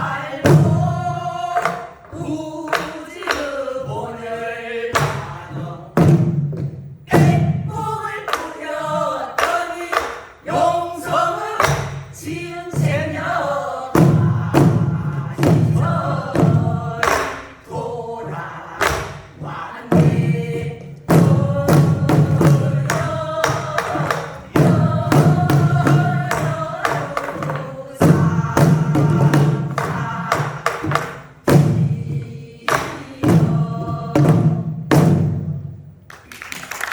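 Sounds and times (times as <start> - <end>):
group singing traditional song: 0.0 - 35.8
barrel drum strokes: 18.2 - 35.9.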